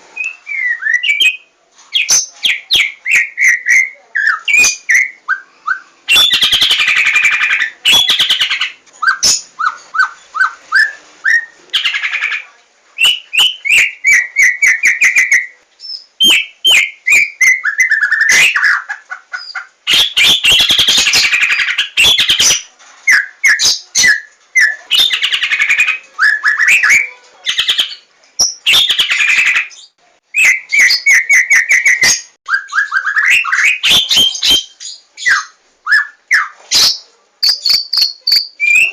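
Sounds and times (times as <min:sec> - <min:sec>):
bird singing whistled notes: 0:00.2 - 0:08.4, 0:13.0 - 0:18.8, 0:25.8 - 0:38.9.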